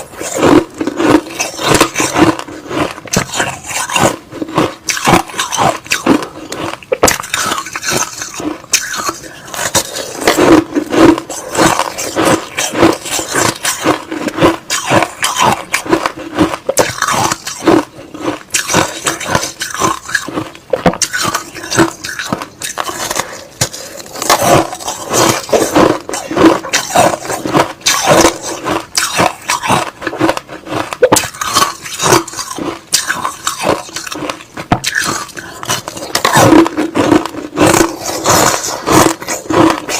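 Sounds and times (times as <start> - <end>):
chewing crushed ice: 0.0 - 39.9.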